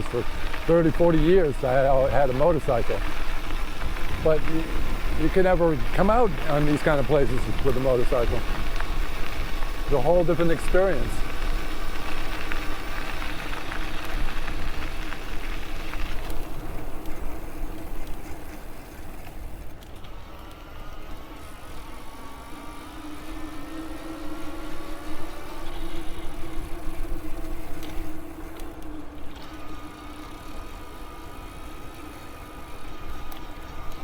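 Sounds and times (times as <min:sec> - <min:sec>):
wind rumble: 0:00.0 - 0:19.7
tyre noise: 0:00.0 - 0:20.1
electric bike motor hum: 0:00.0 - 0:34.0.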